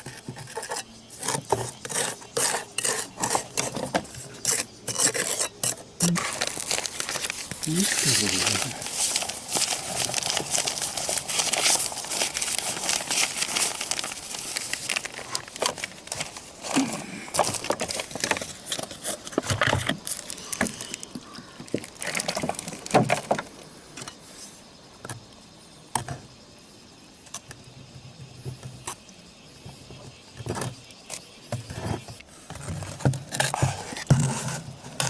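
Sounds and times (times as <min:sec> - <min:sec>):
ceramic roof tiles scraping and clinking: 0:00.0 - 0:24.2, 0:29.8 - 0:35.0.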